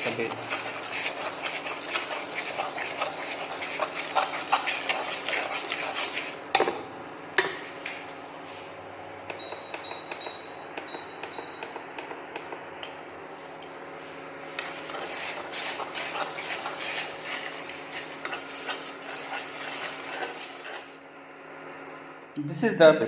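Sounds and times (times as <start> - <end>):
food sizzling: 0.0 - 6.5, 14.6 - 21.0
spatula scraping and tapping pan: 0.0 - 6.7, 14.6 - 20.9.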